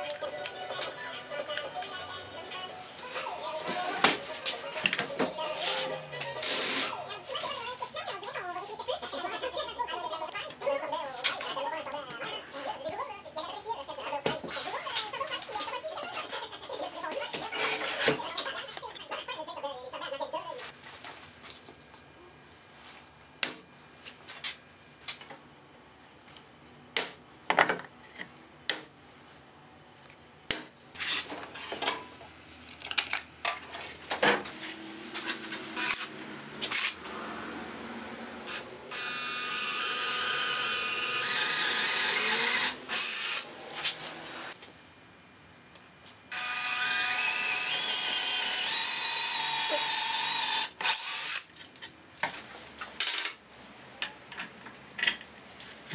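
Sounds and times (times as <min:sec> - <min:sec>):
drill boring into wood: 0:38.5 - 0:43.5, 0:46.3 - 0:51.4.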